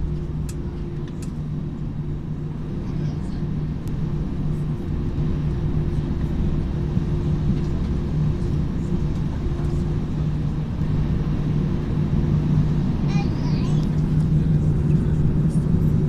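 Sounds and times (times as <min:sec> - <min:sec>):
airliner cabin drone: 0:00.0 - 0:16.0.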